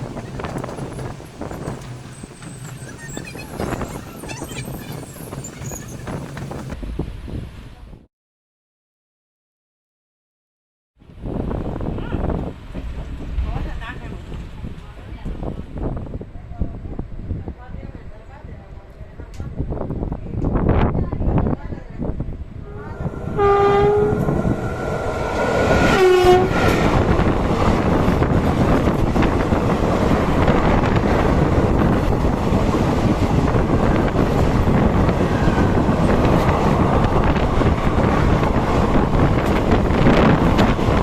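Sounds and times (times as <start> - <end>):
train rumble and rail clatter: 0.0 - 8.0, 11.1 - 41.0
train horn blasts: 22.6 - 27.2.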